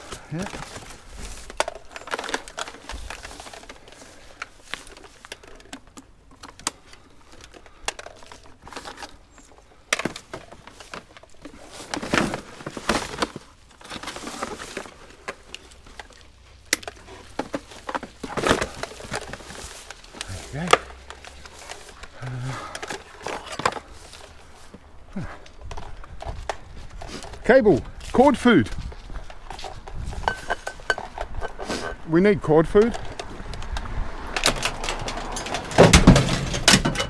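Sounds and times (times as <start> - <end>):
crinkling rustle: 0.0 - 37.0
rubbish knocking and clattering: 16.8 - 32.1, 32.8 - 37.0.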